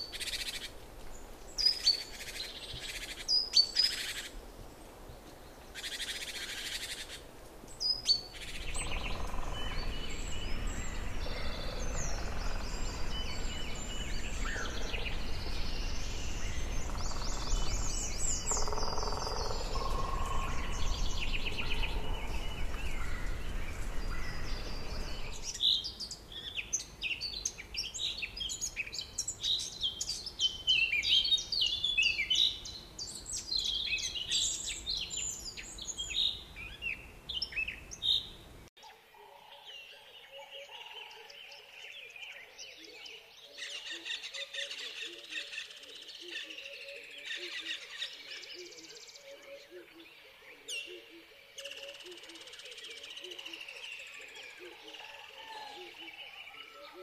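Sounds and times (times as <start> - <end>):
birds chirping and calling: 0.0 - 4.4, 5.5 - 38.4, 39.2 - 57.0
steady low rumble: 9.4 - 18.5.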